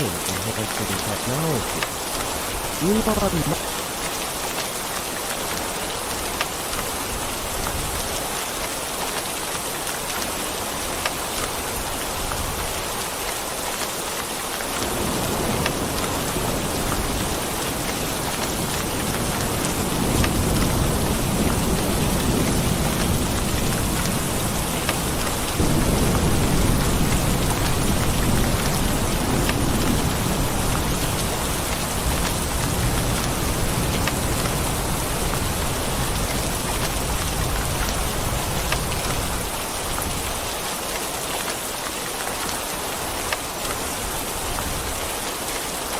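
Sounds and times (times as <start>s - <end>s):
steady rain: 0.0s - 45.9s
low rumble of thunder: 14.8s - 39.4s.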